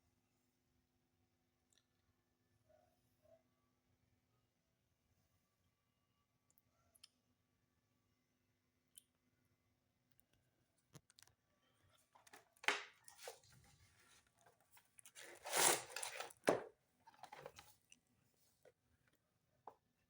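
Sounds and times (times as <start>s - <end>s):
scratchy tearing bursts: 15.2s - 16.4s.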